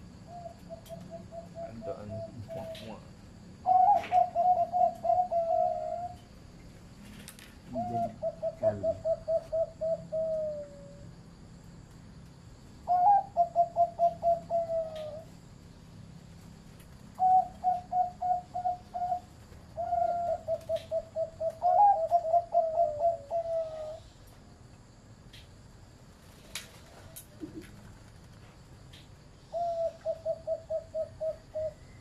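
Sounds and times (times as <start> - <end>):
dove cooing: 0.2 - 6.3, 7.7 - 11.1, 12.8 - 15.4, 17.2 - 24.1, 29.4 - 32.0.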